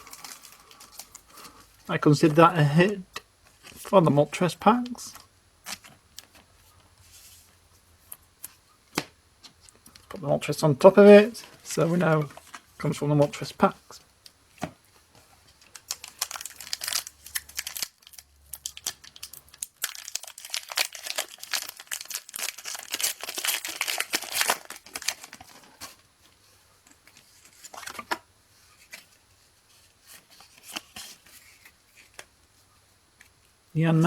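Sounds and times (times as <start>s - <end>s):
foil wrapper tearing and crinkling: 15.7s - 25.8s
rustles of handling: 20.5s - 34.0s.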